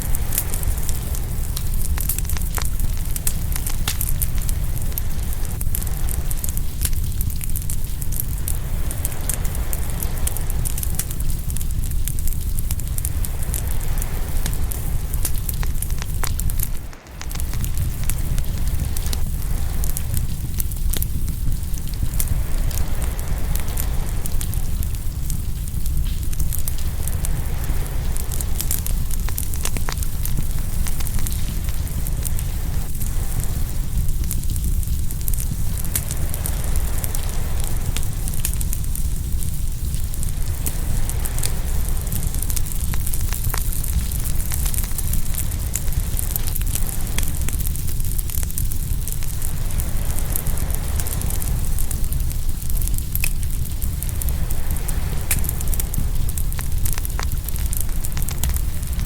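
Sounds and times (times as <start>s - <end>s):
low rumble of ocean waves: 0.0s - 59.0s
wood fire crackling and popping: 0.0s - 59.0s.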